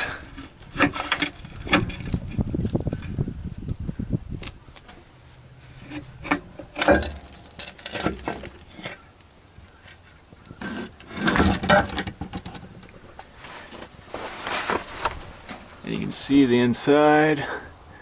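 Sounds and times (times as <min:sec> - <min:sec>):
metal clanking and scraping: 0:00.0 - 0:03.2, 0:05.6 - 0:09.1, 0:10.5 - 0:15.7.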